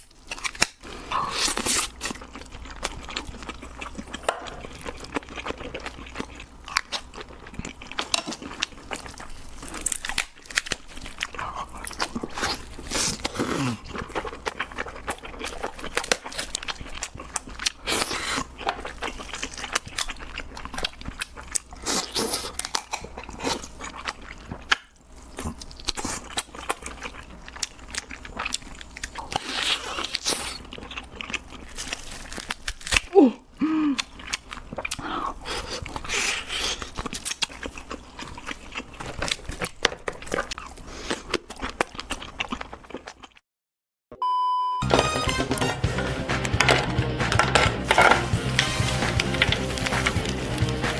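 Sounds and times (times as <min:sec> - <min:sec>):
crunching and chewing crab: 0:00.0 - 0:43.4, 0:46.5 - 0:50.9
crackles and clicks: 0:46.4 - 0:50.9.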